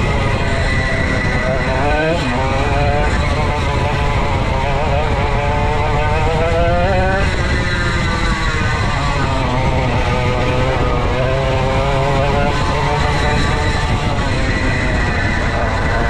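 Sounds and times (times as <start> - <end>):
go-kart two-stroke engine racing: 0.0 - 16.0.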